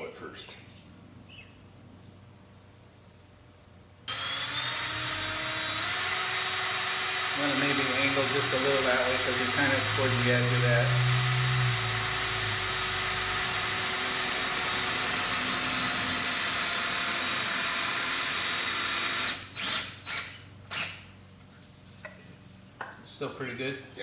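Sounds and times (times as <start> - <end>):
power drill driving screw into wood: 4.1 - 21.1.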